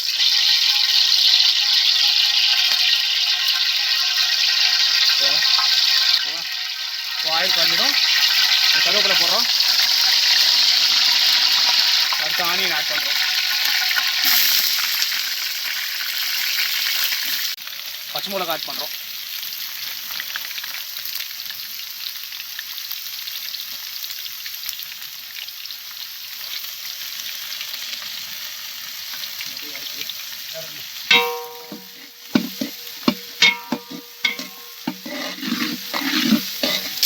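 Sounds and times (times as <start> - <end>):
onions sizzling in hot oil: 0.0 - 37.0
metal spoon clanking on pan: 31.1 - 37.0.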